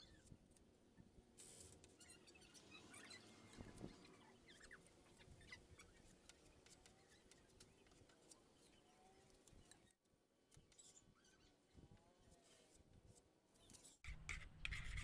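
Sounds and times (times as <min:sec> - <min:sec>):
small chirping glides: 0:02.0 - 0:10.0.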